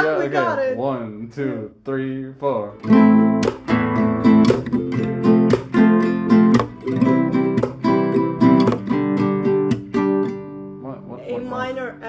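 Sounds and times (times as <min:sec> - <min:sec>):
acoustic guitar strumming chords: 0:02.7 - 0:12.0.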